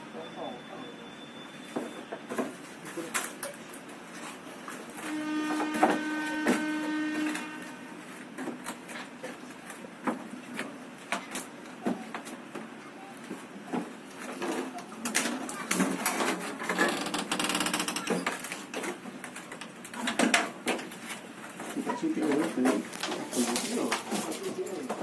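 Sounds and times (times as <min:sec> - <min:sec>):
faint voices: 0:21.7 - 0:25.0.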